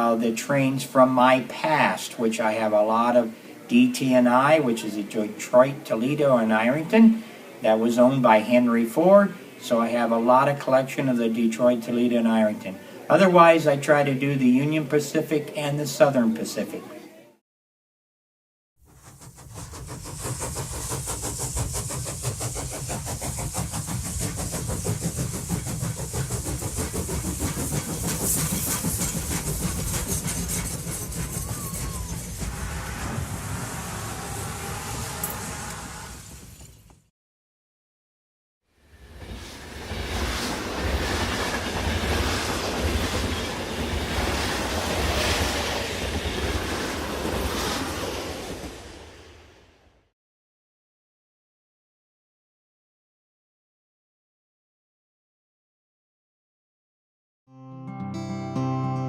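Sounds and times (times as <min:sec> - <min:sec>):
train rumbling on rails: 0:18.8 - 0:37.1, 0:39.0 - 0:49.8
steady hiss: 0:19.1 - 0:31.3
model train clicking on track: 0:19.2 - 0:32.4
low rumble: 0:30.9 - 0:36.6.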